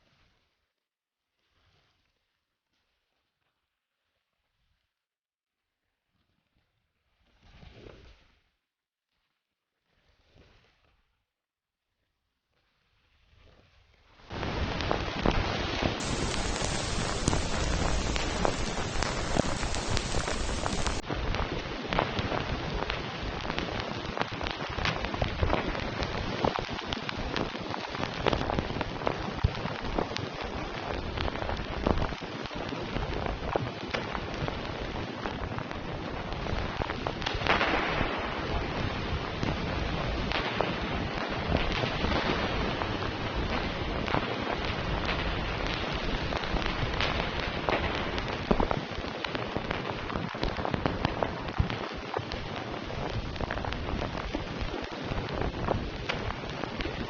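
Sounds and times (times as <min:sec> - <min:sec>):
steady rain falling: 0:14.4 - 0:57.0
raindrops striking sharply: 0:16.0 - 0:21.0.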